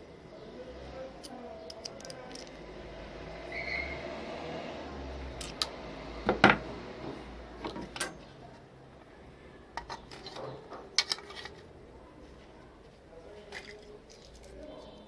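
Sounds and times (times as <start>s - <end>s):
hard objects clicking and knocking: 1.7s - 2.6s, 9.8s - 11.7s.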